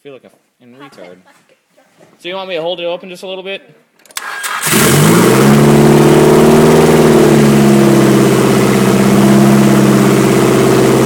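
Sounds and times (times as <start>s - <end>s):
car engine starting and idling: 4.1s - 11.0s.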